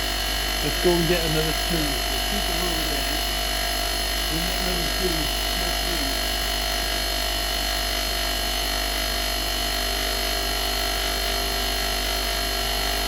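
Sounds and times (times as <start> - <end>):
steady electronic tones: 0.0 - 7.9
electrical hum: 0.0 - 13.0
steady hiss: 0.5 - 6.4.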